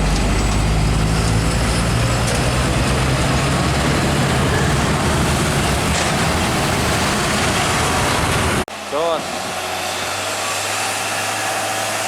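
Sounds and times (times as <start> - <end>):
road noise of tyres: 0.0 - 12.0
truck diesel engine drone: 0.0 - 12.0.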